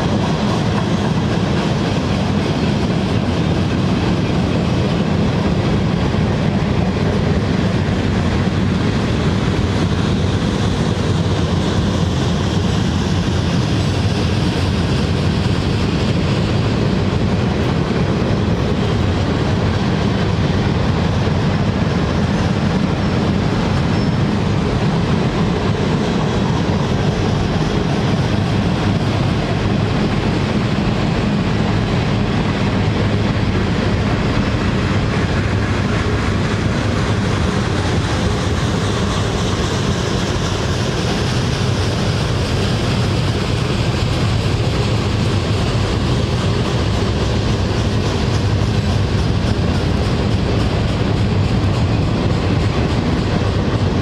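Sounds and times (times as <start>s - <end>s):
freight train wheels on rail: 0.0s - 54.0s.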